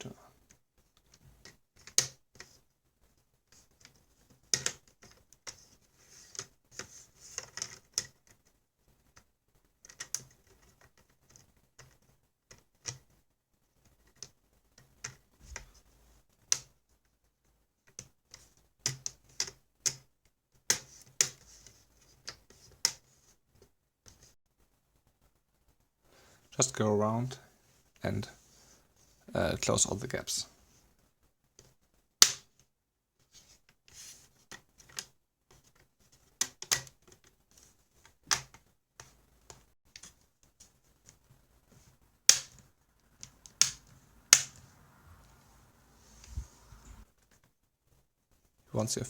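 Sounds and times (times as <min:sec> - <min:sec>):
plastic clicks and snaps: 0:42.3 - 0:44.6.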